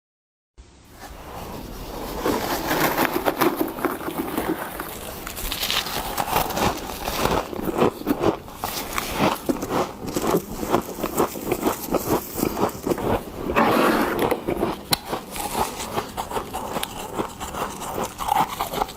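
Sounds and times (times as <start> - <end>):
frost crunching and scraping: 1.0 - 18.9.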